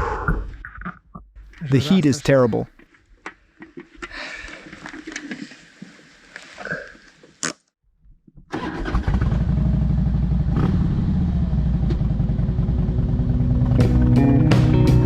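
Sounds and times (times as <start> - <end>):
motorcycle engine starting and rumbling: 8.4 - 15.0
music with a beat: 13.8 - 15.0.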